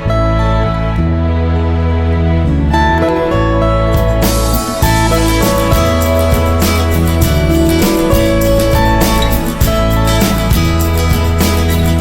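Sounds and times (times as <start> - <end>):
slow soft instrumental music: 0.0 - 12.0.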